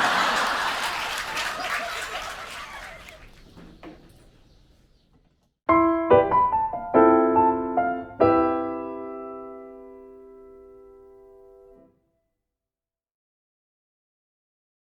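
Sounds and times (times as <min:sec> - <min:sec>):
piano chords jingle: 0:05.7 - 0:11.9.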